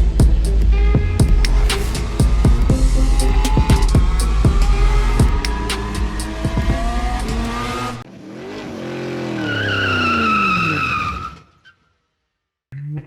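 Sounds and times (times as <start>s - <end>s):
pounding music beat: 0.0s - 8.0s
car engine revving: 0.0s - 11.0s.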